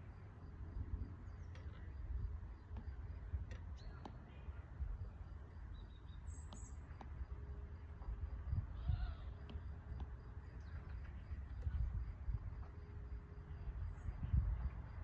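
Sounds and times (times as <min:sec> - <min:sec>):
low outdoor rumble: 0:00.0 - 0:15.0
bird chirps: 0:05.6 - 0:07.0.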